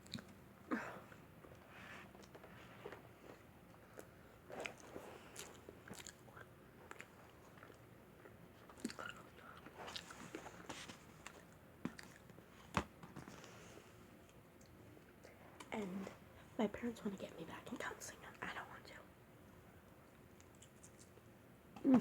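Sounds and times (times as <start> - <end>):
chewing and biting pizza: 3.3 - 12.4.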